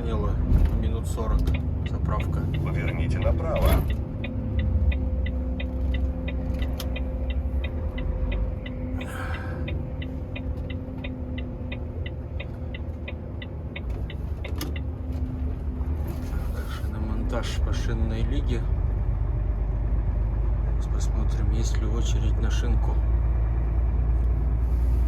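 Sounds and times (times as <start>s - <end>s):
turn signal ticking: 0.0s - 16.0s
diesel engine drone: 0.0s - 25.0s.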